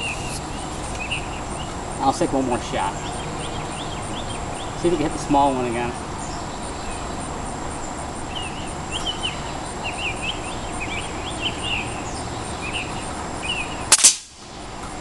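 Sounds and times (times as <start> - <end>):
high insect pulse: 0.0 - 15.0
small bird chirping: 2.8 - 14.2.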